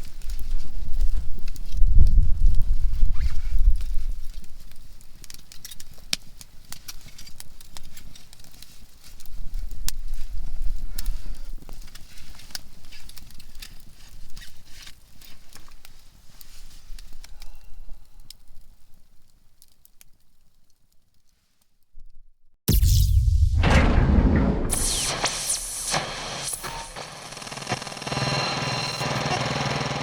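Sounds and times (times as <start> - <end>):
campfire crackling and popping: 3.6 - 17.5
low rumble: 22.7 - 28.0.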